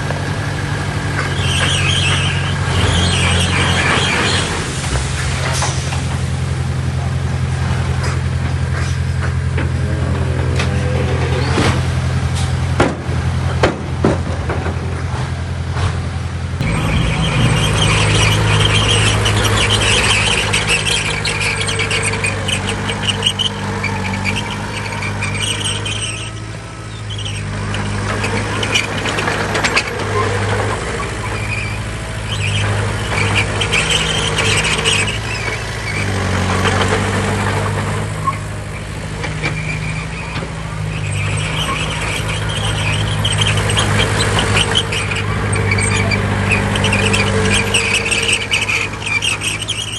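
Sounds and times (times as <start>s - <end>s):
diesel machinery under load: 0.0s - 49.9s
high metallic squealing: 1.0s - 6.6s, 8.0s - 12.7s, 16.6s - 49.9s.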